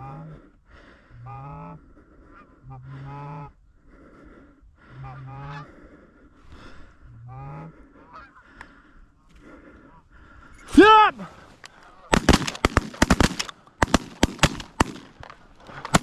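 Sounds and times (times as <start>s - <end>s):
goose honking: 5.0s - 5.8s, 7.2s - 8.5s.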